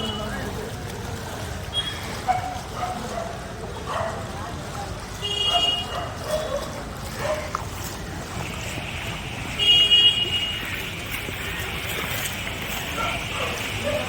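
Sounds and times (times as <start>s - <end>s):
street traffic: 0.0s - 14.0s
vehicle horn honking: 5.2s - 5.9s, 9.6s - 10.7s.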